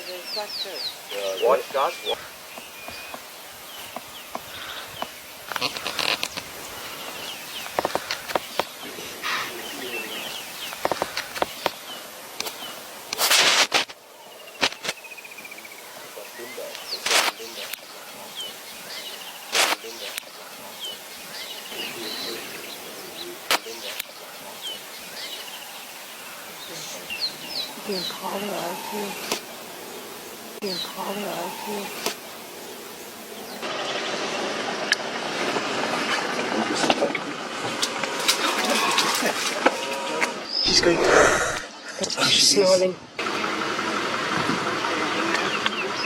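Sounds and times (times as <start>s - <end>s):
small birds chirping: 0.0s - 35.1s, 37.8s - 46.0s
steady outdoor hiss: 0.0s - 46.0s
rustling: 1.6s - 14.0s, 16.6s - 21.6s.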